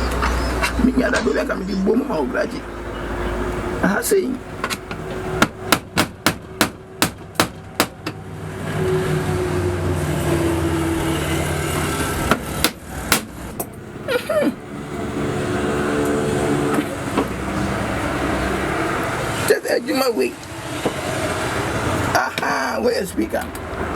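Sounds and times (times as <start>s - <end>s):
sharp knocks like hammering: 4.6s - 8.2s, 12.3s - 13.3s.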